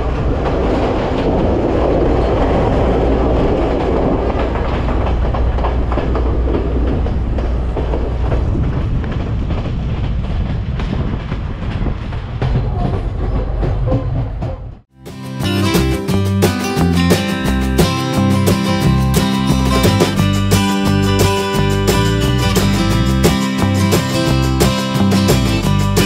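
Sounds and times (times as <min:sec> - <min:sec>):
wheels clicking over rail joints: 0:00.0 - 0:14.9
train wheels rumbling: 0:00.0 - 0:26.0.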